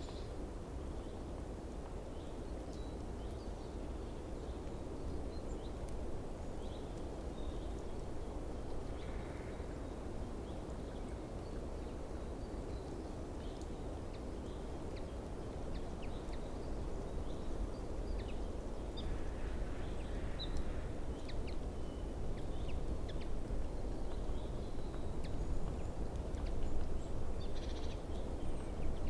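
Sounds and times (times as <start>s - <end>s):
low rumbling background noise: 0.0s - 29.0s.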